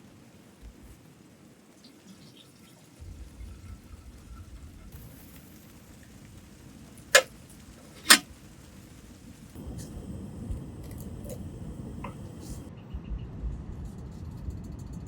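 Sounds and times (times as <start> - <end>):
low steady rumble: 3.0 - 14.8.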